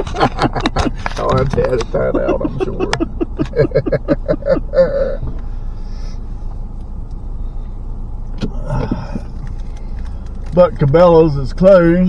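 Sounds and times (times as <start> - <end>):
person speaking: 0.0 - 5.3
truck engine and road noise: 0.0 - 12.0.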